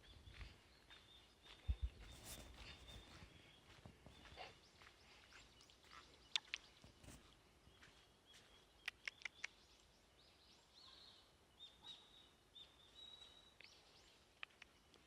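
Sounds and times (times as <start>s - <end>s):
short sharp bird chirps: 1.7s - 3.2s.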